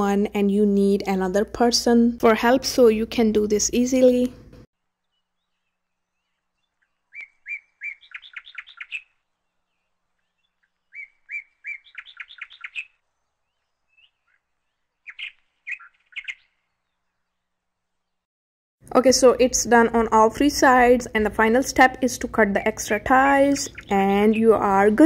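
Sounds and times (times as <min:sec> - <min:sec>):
songbird whistling and trilling: 0:07.1 - 0:09.1, 0:10.3 - 0:13.0, 0:15.0 - 0:16.6.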